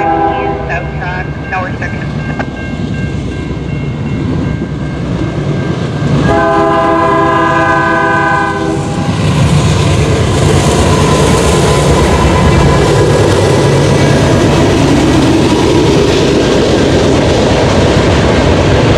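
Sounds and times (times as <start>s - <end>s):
train horn blast: 0.0s - 1.2s, 6.2s - 9.2s
freight train rumble: 0.0s - 18.9s.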